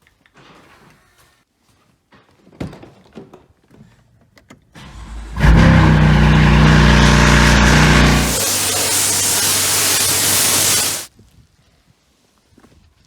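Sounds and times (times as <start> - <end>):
car engine starting and idling: 4.8 - 11.1.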